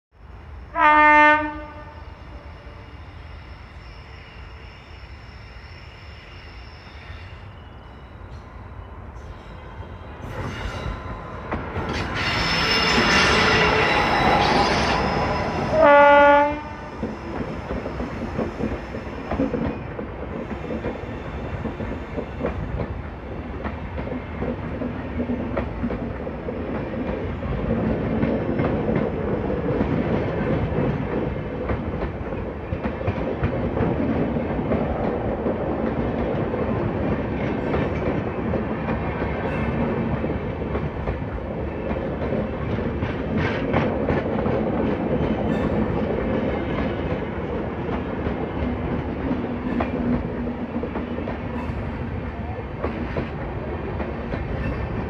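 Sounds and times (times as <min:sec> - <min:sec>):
locomotive horn blasts: 0:00.8 - 0:02.9, 0:15.7 - 0:17.0
train wheels clattering over rail joints: 0:16.8 - 0:55.0.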